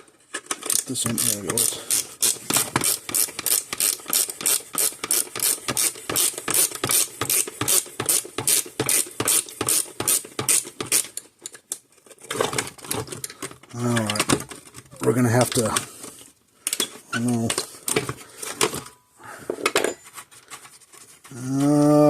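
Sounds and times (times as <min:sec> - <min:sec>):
ratchet tool clicking: 0:00.6 - 0:11.2.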